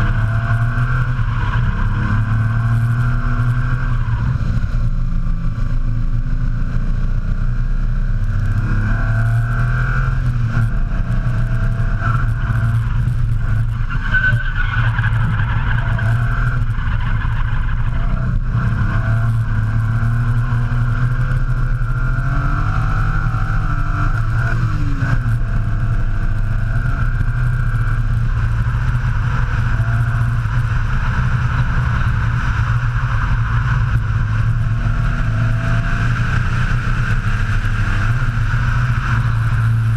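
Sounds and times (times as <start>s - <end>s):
tyre squeal: 13.4s - 18.7s.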